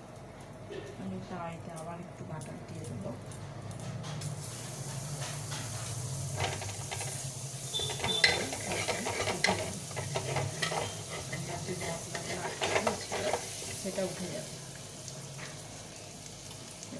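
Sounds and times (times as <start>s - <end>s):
butter sizzling in a pan: 4.2s - 16.9s
metal spatula scraping a pan: 6.4s - 13.8s.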